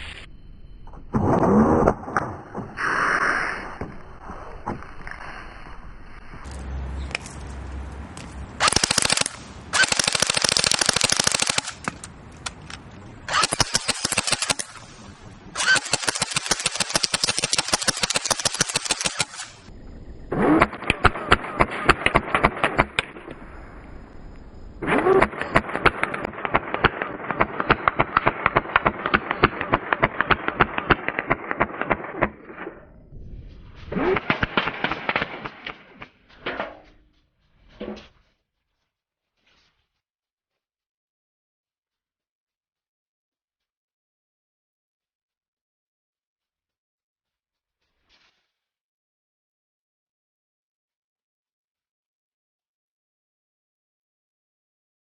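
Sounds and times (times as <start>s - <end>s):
airsoft rifle automatic fire: 8.6s - 12.1s, 13.3s - 14.9s, 15.5s - 19.7s, 24.8s - 32.6s, 34.0s - 36.0s.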